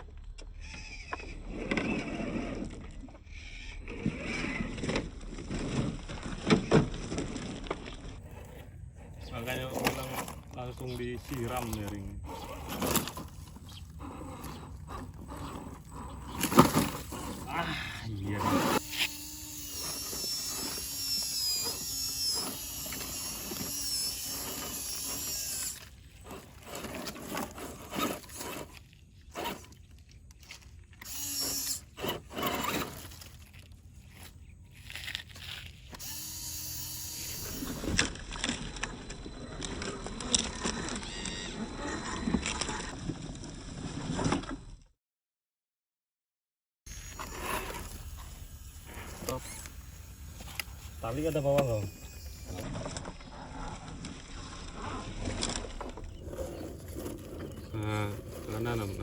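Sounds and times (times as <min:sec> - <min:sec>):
electric motors whining: 0:00.2 - 0:44.7, 0:46.9 - 0:59.0.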